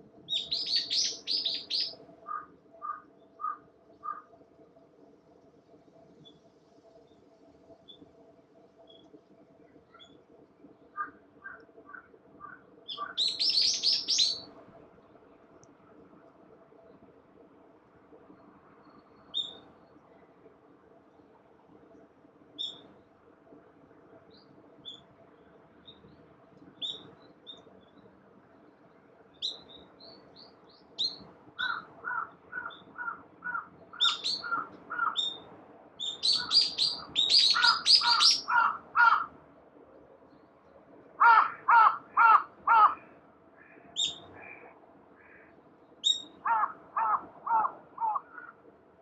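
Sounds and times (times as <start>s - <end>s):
small birds chirping: 0.3s - 4.3s, 10.9s - 14.5s, 24.3s - 35.4s, 36.0s - 39.2s, 43.6s - 47.2s
crow cawing harshly: 31.6s - 33.7s, 34.5s - 35.2s, 37.5s - 39.3s, 41.2s - 43.7s, 46.4s - 48.5s.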